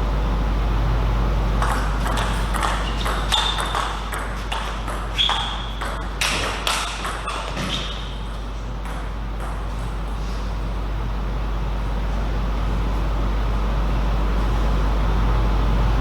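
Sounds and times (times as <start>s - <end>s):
steady low hum: 0.0s - 16.0s
table tennis ball clicking: 1.6s - 8.1s.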